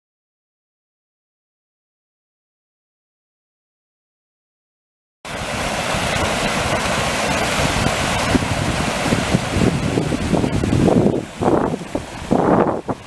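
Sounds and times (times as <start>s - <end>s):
fast-flowing water rushing: 5.3s - 13.0s
wind buffeting microphone: 5.3s - 13.0s.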